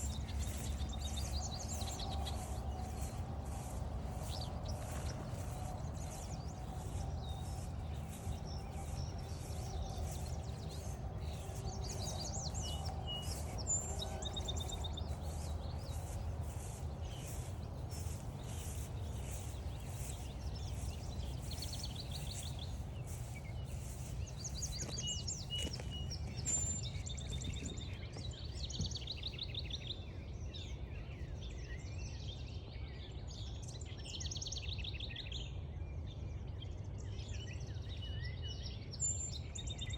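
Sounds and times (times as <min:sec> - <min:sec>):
steady low rumble: 0:00.0 - 0:28.8
wild birds singing: 0:00.0 - 0:35.4.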